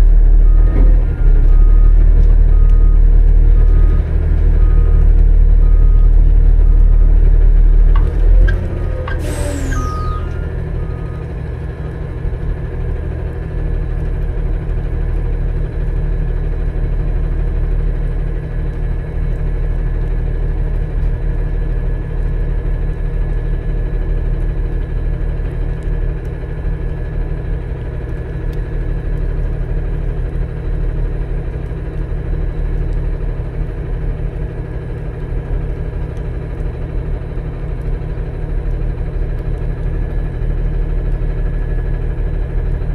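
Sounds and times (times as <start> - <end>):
diesel engine idling: 0.0 - 13.8
short falling squeal: 8.5 - 11.2.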